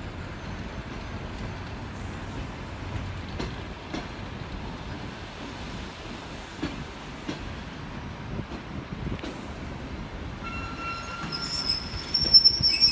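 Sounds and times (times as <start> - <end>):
train coaches rumbling on rails: 0.0 - 12.9
wheels clacking over rail joints: 0.3 - 5.1
high thin wheel squeal: 10.5 - 12.9.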